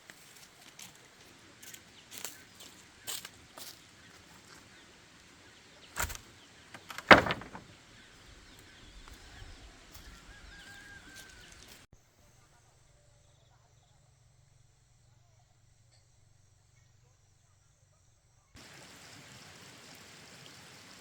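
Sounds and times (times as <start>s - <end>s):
outdoor ambience: 0.0s - 21.0s
knocks: 6.8s - 7.7s.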